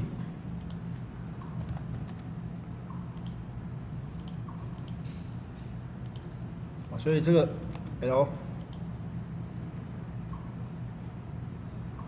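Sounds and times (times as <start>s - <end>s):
low steady hum: 0.0s - 12.0s
computer mouse clicks: 0.6s - 2.3s, 3.2s - 3.4s, 4.2s - 5.2s, 6.0s - 7.9s.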